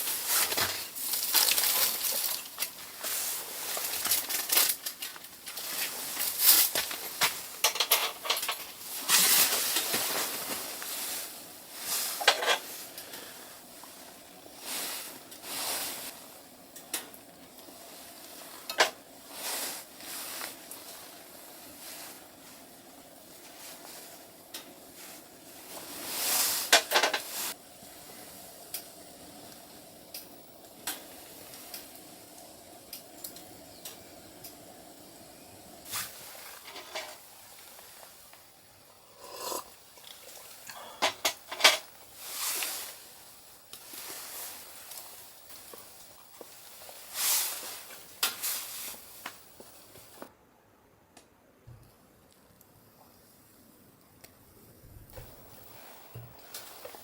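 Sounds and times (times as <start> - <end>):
scrapes and rustles of handling: 0.0 - 16.2, 17.8 - 27.6, 35.8 - 38.3, 40.2 - 50.3
faint steady hum: 0.0 - 57.0.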